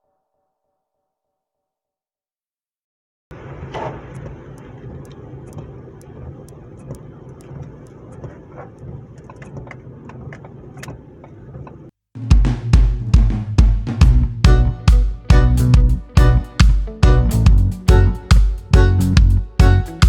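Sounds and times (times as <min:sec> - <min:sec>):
music with heavy drum beat: 0:12.2 - 0:20.0.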